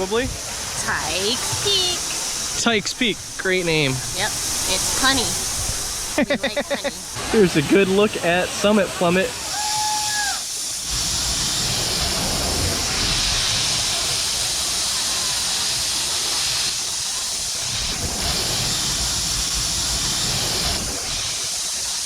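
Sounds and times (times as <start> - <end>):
wind rushing over microphone: 0.0 - 8.6, 10.6 - 21.4.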